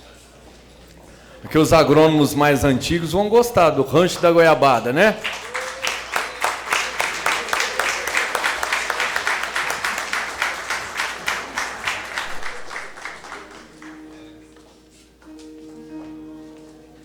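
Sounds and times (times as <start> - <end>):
audience applause: 1.6 - 14.4.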